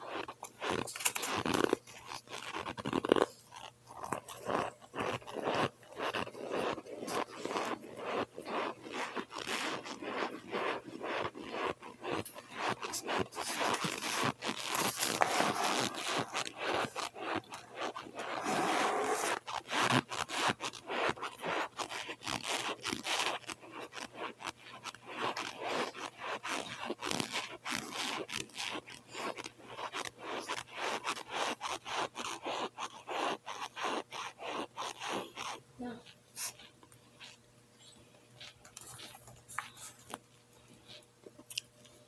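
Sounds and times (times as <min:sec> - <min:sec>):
chewing crunchy food: 0:00.0 - 0:37.4, 0:38.3 - 0:42.0
scraping: 0:00.2 - 0:23.4.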